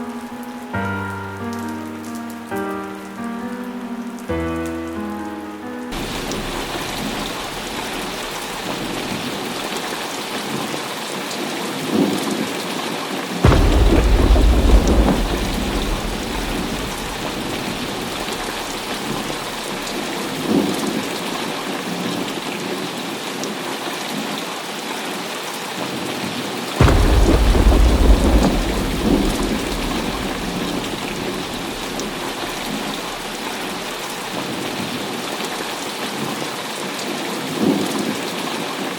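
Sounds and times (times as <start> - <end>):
heavy rain falling: 0.0 - 38.9
rolling thunder: 5.9 - 9.8, 13.4 - 21.4, 26.8 - 35.1.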